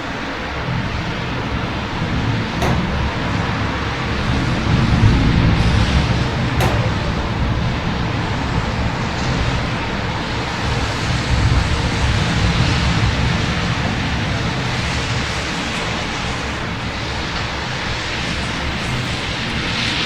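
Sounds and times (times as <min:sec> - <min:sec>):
city road traffic rumble: 0:00.0 - 0:20.0
sharp click: 0:02.5 - 0:07.9.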